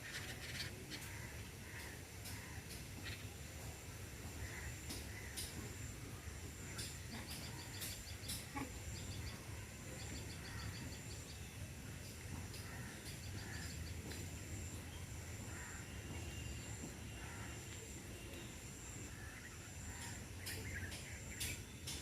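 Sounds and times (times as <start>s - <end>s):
small birds chattering: 0.0s - 22.0s.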